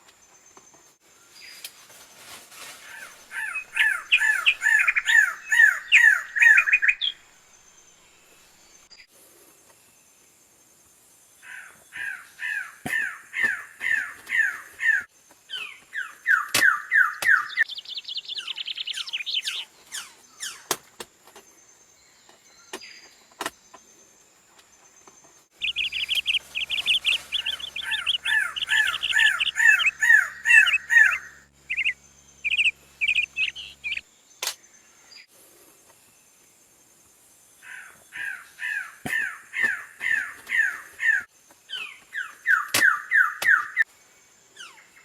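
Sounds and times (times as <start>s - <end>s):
bird calling sharp sliding notes: 25.6s - 34.0s.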